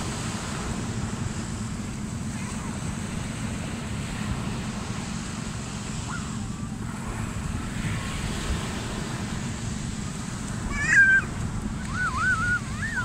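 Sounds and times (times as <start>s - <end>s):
ocean surf washing on beach: 0.0s - 13.0s
wind rumble on microphone: 0.0s - 13.0s
faint voice-like cry: 10.7s - 11.3s, 11.9s - 13.0s.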